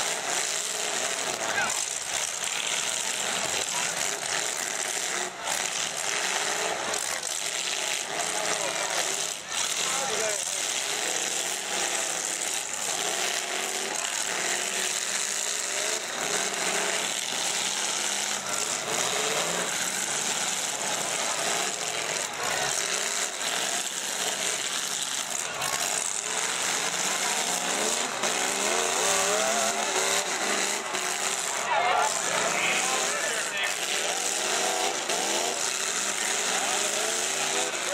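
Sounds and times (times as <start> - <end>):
car engines revving: 0.0 - 37.9.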